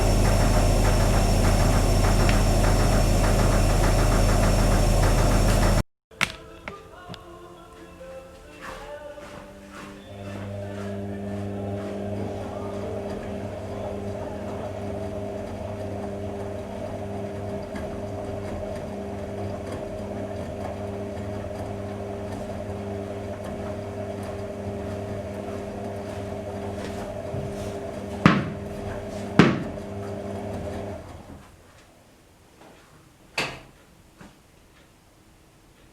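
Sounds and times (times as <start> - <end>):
washing machine humming: 0.0 - 5.8, 9.3 - 31.5.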